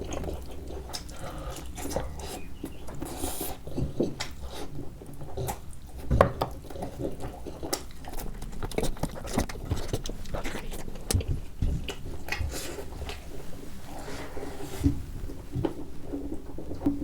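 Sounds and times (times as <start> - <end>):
person chewing with wet smacks: 0.0 - 13.5.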